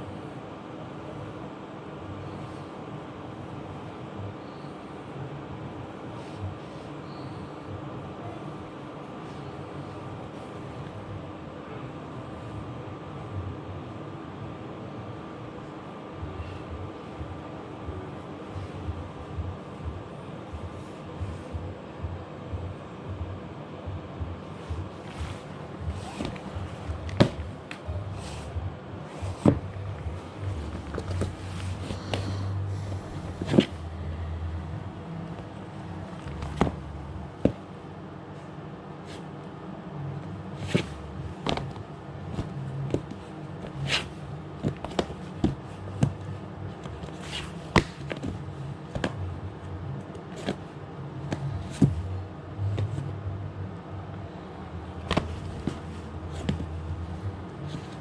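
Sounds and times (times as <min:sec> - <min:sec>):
low uneven rumble: 0:16.2 - 0:38.6
footsteps: 0:24.6 - 0:37.7, 0:54.9 - 0:58.0.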